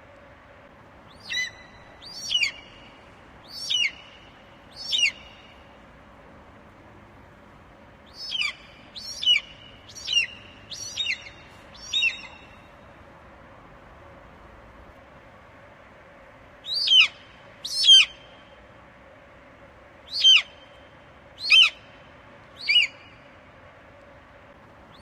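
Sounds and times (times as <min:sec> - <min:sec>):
eagle chirping: 0:01.1 - 0:05.6, 0:08.1 - 0:12.6, 0:16.6 - 0:18.3, 0:21.4 - 0:21.8, 0:22.6 - 0:23.2.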